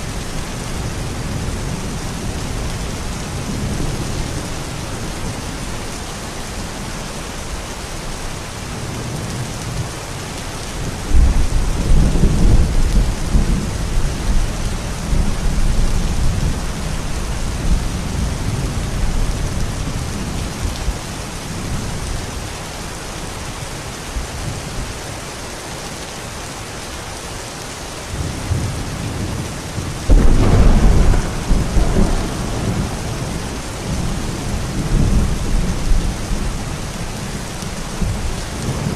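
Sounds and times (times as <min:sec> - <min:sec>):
steady rain falling: 0:00.0 - 0:38.9
rolls of thunder: 0:30.1 - 0:36.0.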